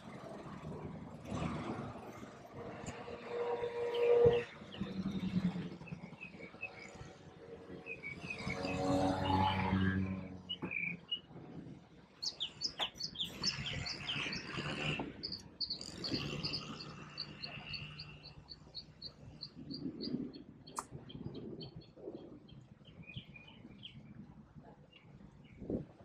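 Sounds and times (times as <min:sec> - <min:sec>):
birds chirping and calling: 0:02.8 - 0:11.3, 0:12.2 - 0:24.0.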